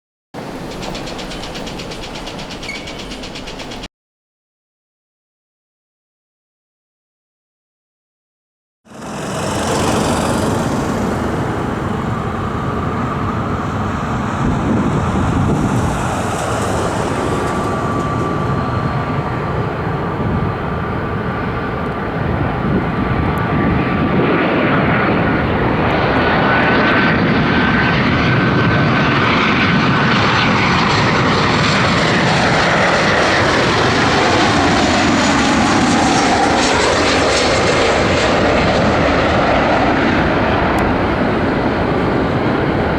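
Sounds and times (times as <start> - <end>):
high engine whine: 0.4 - 3.9, 8.9 - 42.9
jet engines roaring: 0.4 - 3.9, 8.9 - 42.9.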